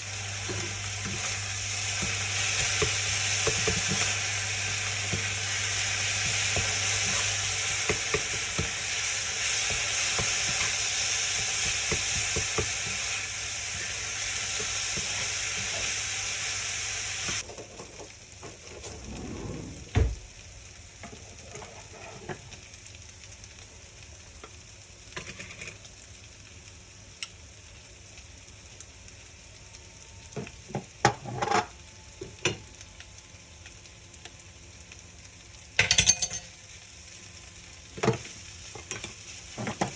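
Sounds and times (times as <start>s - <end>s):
food sizzling in a frying pan: 0.0s - 39.9s.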